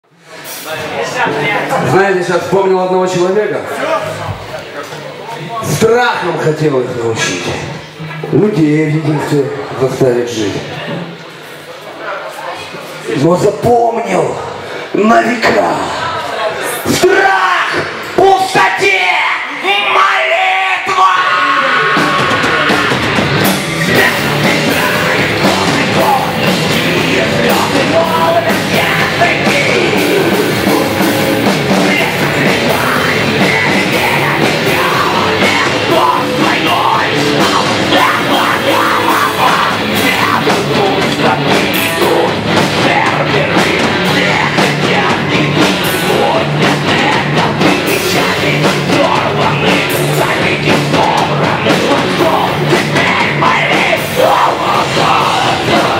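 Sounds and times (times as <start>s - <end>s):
distorted electric guitars: 16.8s - 55.9s
driving drum kit: 20.8s - 55.9s
bass guitar: 21.1s - 55.9s.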